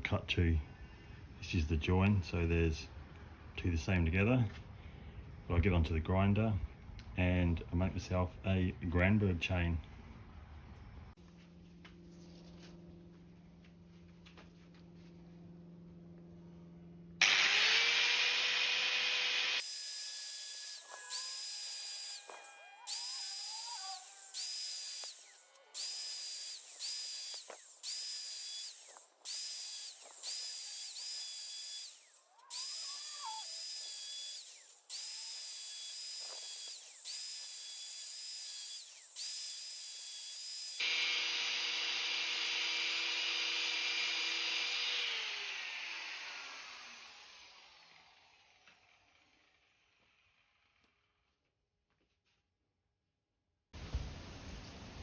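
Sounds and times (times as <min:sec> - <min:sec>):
electric grinder grinding saw chain: 0:17.2 - 0:50.9.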